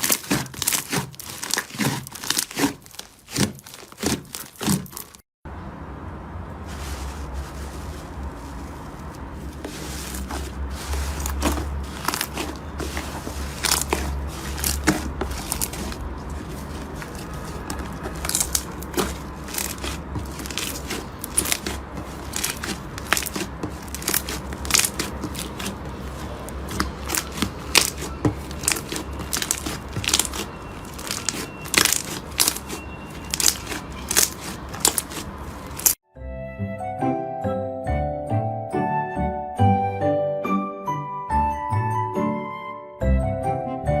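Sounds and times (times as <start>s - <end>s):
slime crackling and popping: 0.0s - 5.2s, 11.2s - 36.0s.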